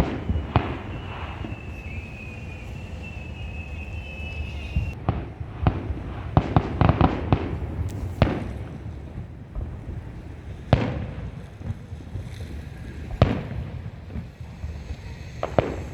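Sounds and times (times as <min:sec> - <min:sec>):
firework whistle: 0:00.0 - 0:05.2, 0:12.2 - 0:15.9
firework bangs: 0:00.0 - 0:15.9.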